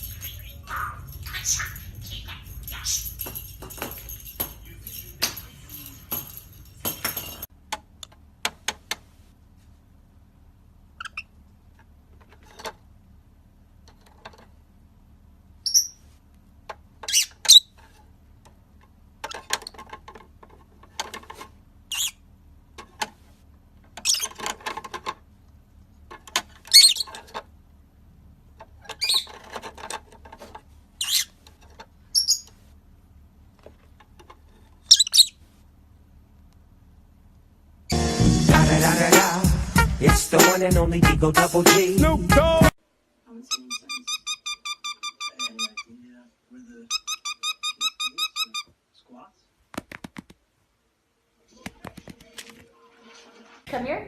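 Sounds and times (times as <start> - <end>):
bird chirping and squawking: 0.0 - 3.4, 11.0 - 11.3, 15.6 - 16.0, 17.0 - 17.7, 21.9 - 22.2, 24.0 - 24.4, 26.7 - 27.2, 28.9 - 29.4, 31.0 - 31.4, 32.1 - 32.6, 34.9 - 35.4, 43.5 - 45.9, 46.9 - 48.7.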